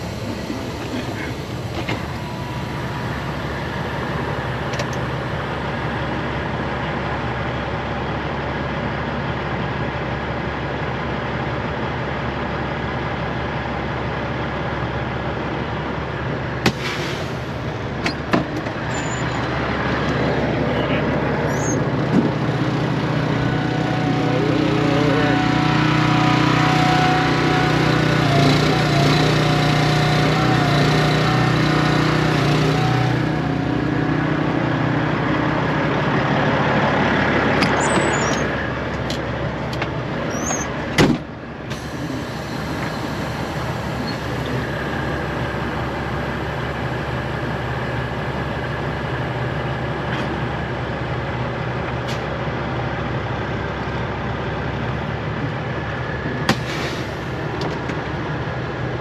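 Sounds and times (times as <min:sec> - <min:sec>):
air hissing: 0:00.0 - 0:05.8, 0:16.7 - 0:18.2, 0:41.7 - 0:48.2, 0:56.5 - 0:57.5
diesel truck engine idling: 0:00.0 - 0:59.0.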